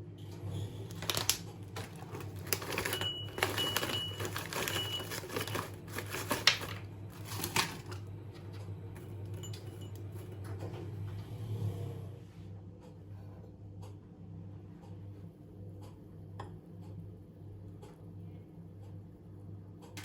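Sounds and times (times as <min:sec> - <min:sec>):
steady low hum: 0:00.0 - 0:20.0
small objects clicking and clattering: 0:00.9 - 0:08.0.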